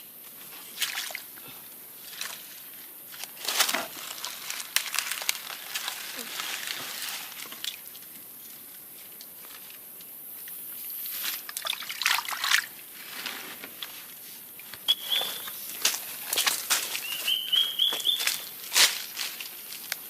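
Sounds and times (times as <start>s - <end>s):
crackles: 2.1s - 11.6s
short high chirp: 14.9s - 15.6s.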